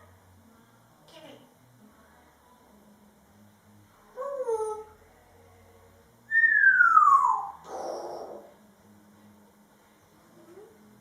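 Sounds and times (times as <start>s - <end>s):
parrot call: 6.3s - 8.5s.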